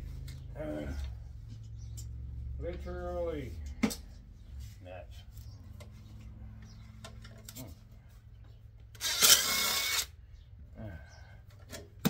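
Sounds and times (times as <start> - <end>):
light clicks of metal parts: 0.2 - 2.9
power tool running: 9.0 - 10.1.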